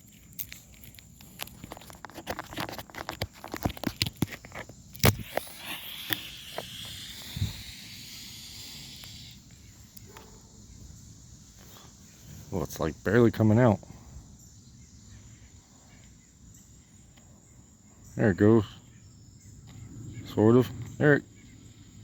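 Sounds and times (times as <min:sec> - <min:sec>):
smoke grenade hissing: 0:04.3 - 0:10.0
sharp snap: 0:05.0 - 0:10.2.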